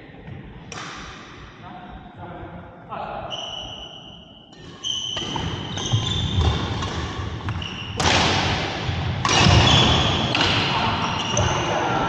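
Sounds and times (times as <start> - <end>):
shoes squeaking on hall floor: 3.3 - 8.2, 9.2 - 12.0
racket hitting shuttlecock: 4.7 - 11.4.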